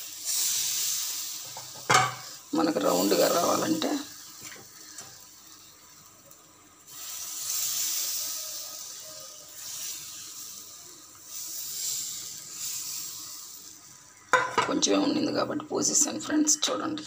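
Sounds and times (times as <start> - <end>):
batter sizzling on a hot pan: 0.0 - 17.0.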